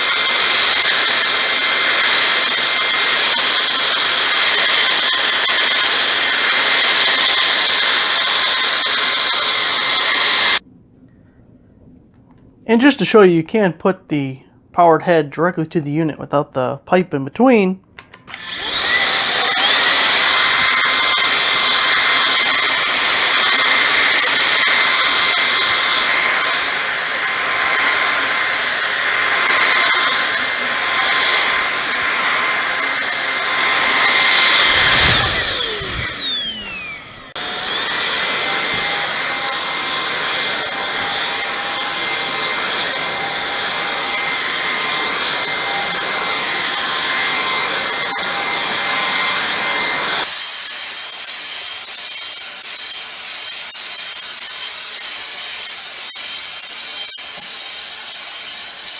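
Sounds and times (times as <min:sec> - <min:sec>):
vacuum motor high whine: 0:00.0 - 0:10.6, 0:18.1 - 0:50.2.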